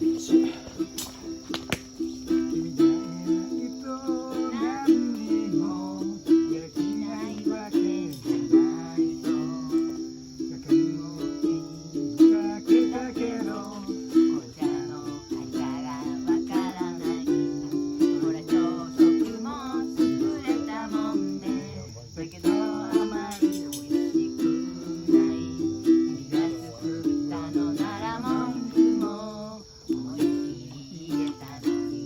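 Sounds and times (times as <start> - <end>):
ukulele strumming chords: 0.0 - 32.0
person singing: 2.0 - 32.0.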